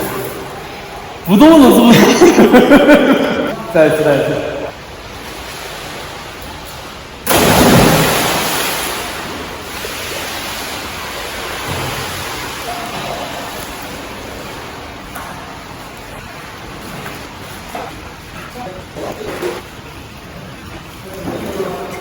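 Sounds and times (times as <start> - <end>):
water sloshing: 2.2 - 22.0
swimmer splashing into pool: 7.2 - 15.1.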